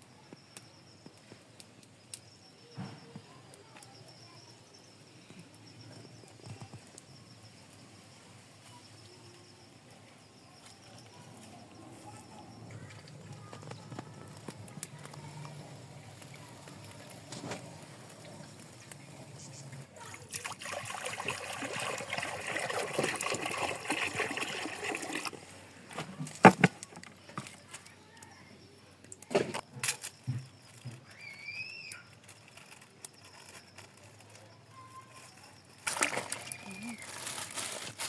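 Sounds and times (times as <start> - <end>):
water pouring and splashing: 15.8 - 27.7, 35.8 - 38.0.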